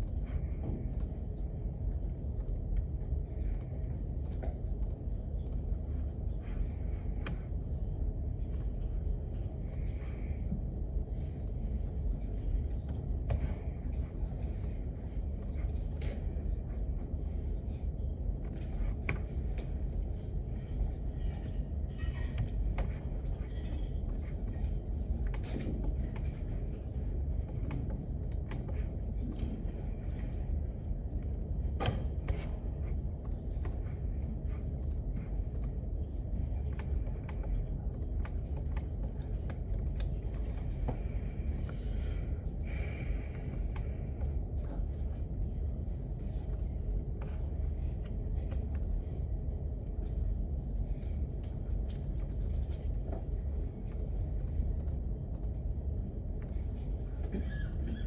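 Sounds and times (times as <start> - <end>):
keyboard typing clicks: 0.0 - 5.8, 8.4 - 9.0, 33.2 - 41.0, 46.4 - 49.2
low room rumble: 0.0 - 58.0.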